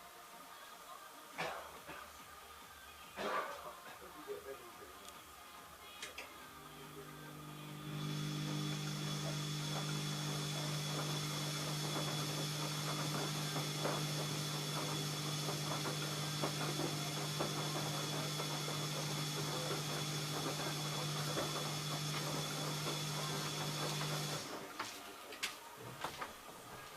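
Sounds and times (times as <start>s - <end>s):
washing machine motor humming: 6.4s - 24.9s.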